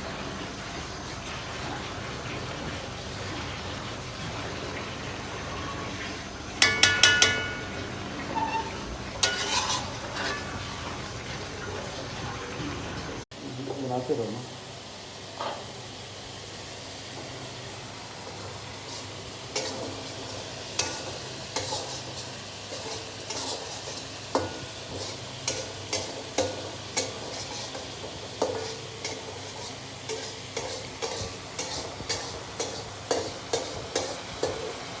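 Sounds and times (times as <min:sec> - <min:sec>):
chicken and onions sizzling: 0:00.0 - 0:12.6, 0:13.4 - 0:35.0
ladle clanking against pot: 0:06.6 - 0:10.6
ladle scraping pot: 0:06.6 - 0:10.8, 0:18.9 - 0:34.7.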